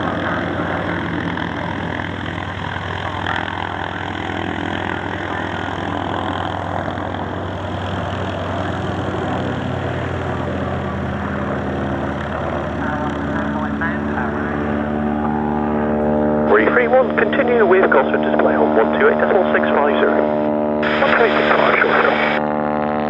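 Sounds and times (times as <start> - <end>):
engine running at low speed: 0.0 - 23.0.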